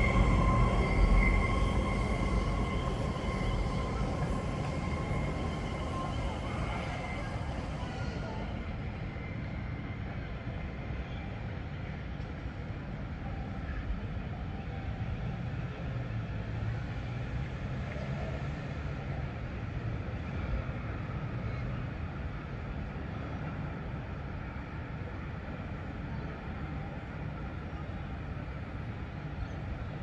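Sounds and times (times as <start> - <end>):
vehicle low rumble: 0.0 - 5.5.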